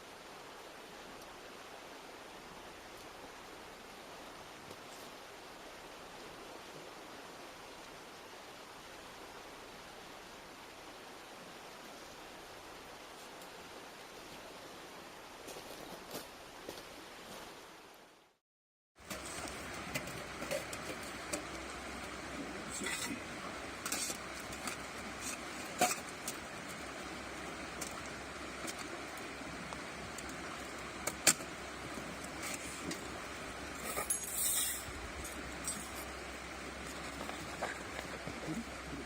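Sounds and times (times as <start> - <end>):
campfire crackling and popping: 19.0 - 33.9.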